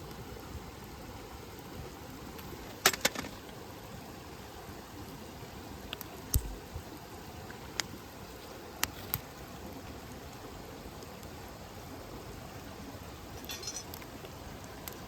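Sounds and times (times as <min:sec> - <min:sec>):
campfire hissing: 0:00.0 - 0:15.0
campfire crackling pops: 0:05.9 - 0:06.6, 0:08.8 - 0:09.3.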